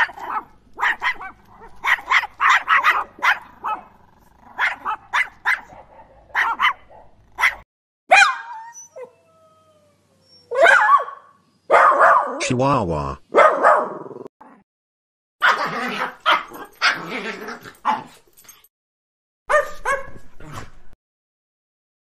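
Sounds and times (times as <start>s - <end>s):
small dog yapping: 0.0s - 3.9s, 4.5s - 9.1s, 10.5s - 12.4s, 13.4s - 14.0s, 15.4s - 18.2s, 19.5s - 20.7s
dog howling cry: 7.4s - 12.4s.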